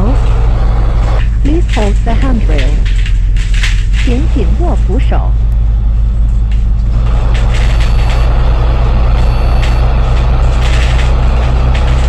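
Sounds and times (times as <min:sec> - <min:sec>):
bus engine droning: 0:00.0 - 0:12.0
high thin electronic tones: 0:07.5 - 0:10.2.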